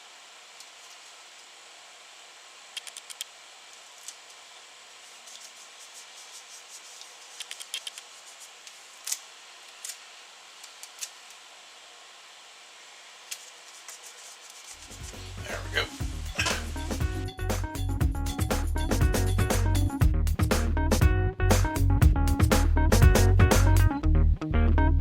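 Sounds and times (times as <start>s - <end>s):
tape clicks and crinkles: 7.0s - 10.0s.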